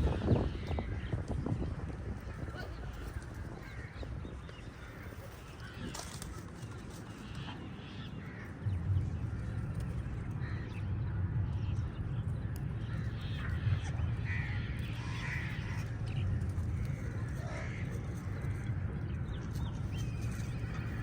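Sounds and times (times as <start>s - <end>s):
steady low rumble: 0.0s - 21.0s
crows cawing: 2.2s - 11.7s, 12.5s - 18.8s.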